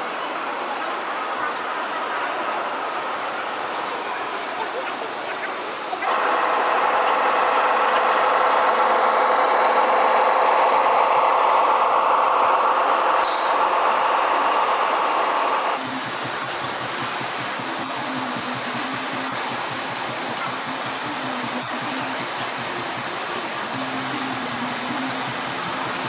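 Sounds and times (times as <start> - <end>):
machine running hum: 6.0 - 26.0
short hiss: 13.2 - 13.9.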